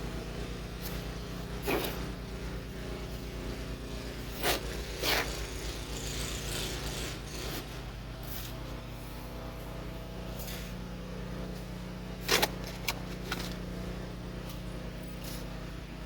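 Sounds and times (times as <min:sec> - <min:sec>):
engine humming: 0:00.0 - 0:16.0
short scrapes: 0:01.6 - 0:02.1, 0:04.3 - 0:05.4.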